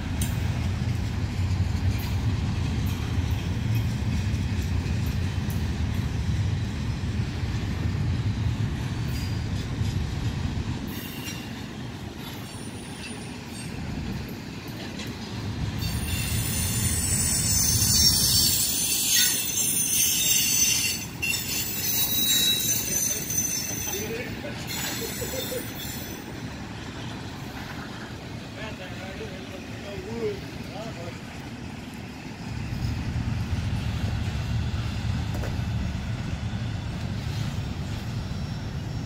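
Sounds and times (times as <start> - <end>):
train rumbling past: 0.0 - 39.0
wheels squealing against rails: 8.4 - 39.0.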